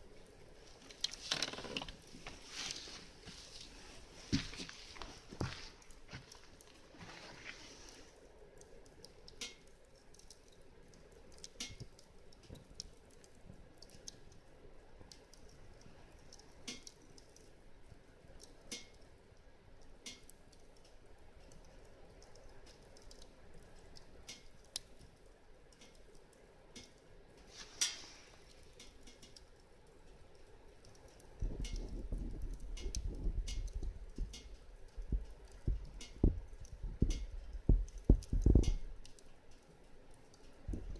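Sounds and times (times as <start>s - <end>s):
wood fire crackling and popping: 0.0s - 40.9s
low rumble with thumps: 31.4s - 39.0s.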